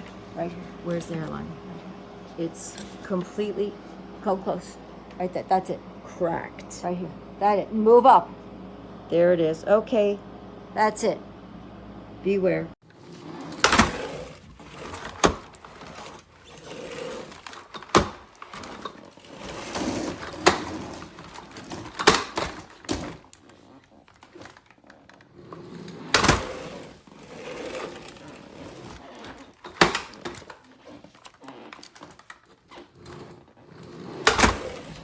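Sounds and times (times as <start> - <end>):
plastic vacuum parts knocking: 17.2 - 23.4.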